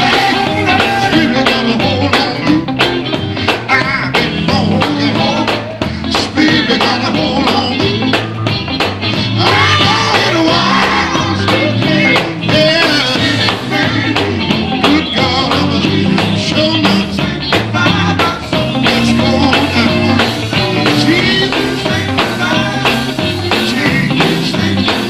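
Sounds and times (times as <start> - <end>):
bass: 0.0 - 25.0
live gospel band playing: 0.0 - 25.0
steady drum beat: 0.0 - 25.0.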